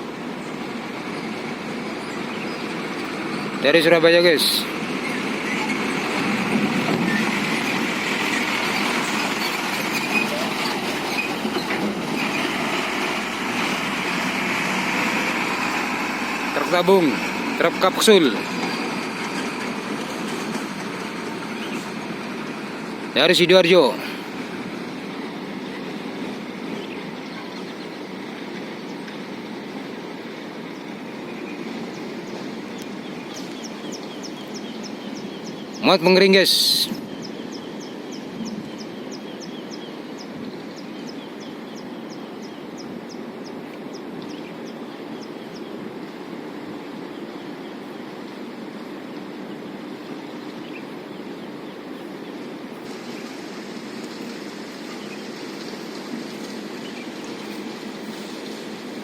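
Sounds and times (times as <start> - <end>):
heavy dump truck running: 0.0 - 28.3
road noise: 0.0 - 59.0.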